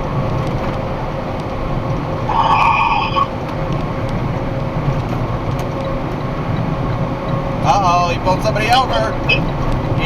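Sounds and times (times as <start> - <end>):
truck engine and road rumble: 0.0 - 10.0
brief pitched tone: 2.3 - 3.3.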